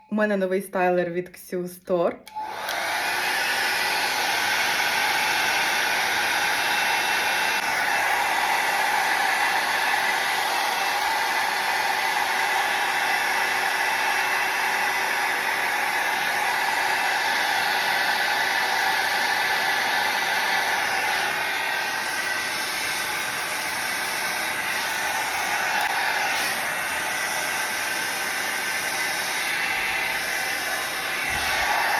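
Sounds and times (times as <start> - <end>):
hot-air brush fan whirring: 2.3 - 31.9.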